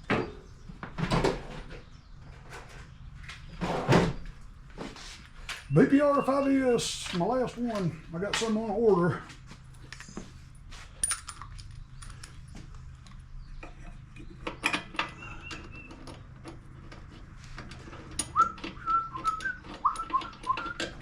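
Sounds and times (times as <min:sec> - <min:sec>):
person whistling: 0:18.4 - 0:20.8.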